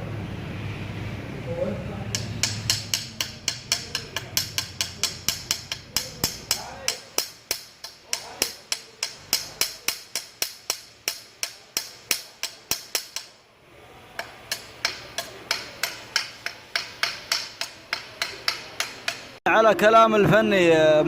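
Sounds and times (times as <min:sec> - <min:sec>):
hammer striking metal pipe: 0:02.1 - 0:13.4, 0:14.2 - 0:19.4.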